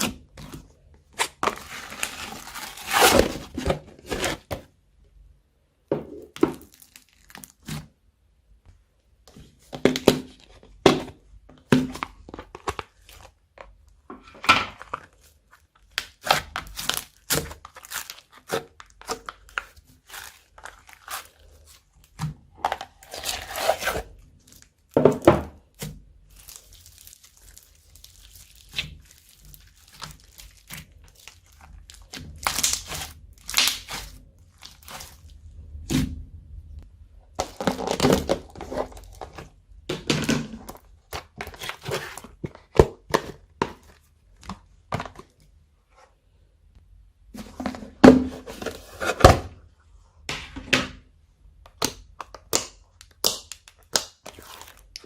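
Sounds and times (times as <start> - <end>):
slime crackling and popping: 26.3 - 35.3, 51.8 - 55.0.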